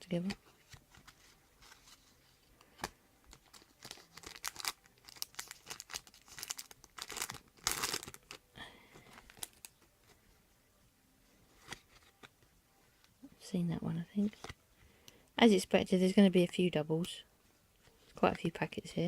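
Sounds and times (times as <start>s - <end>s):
foil wrapper crinkling and tearing: 3.2s - 8.4s.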